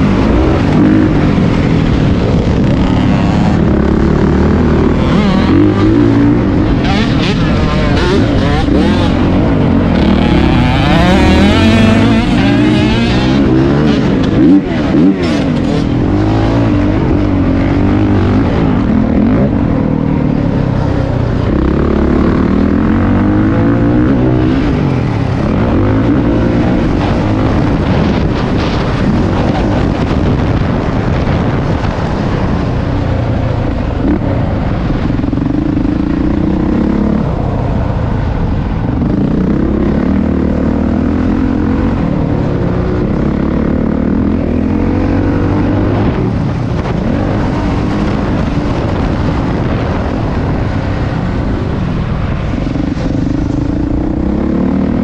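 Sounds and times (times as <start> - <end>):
dirt bike engine revving: 0.0 - 32.6.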